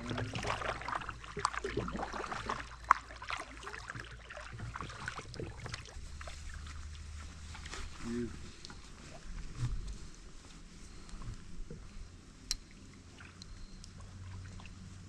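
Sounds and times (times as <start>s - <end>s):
paddle splashing in water: 0.0s - 8.0s.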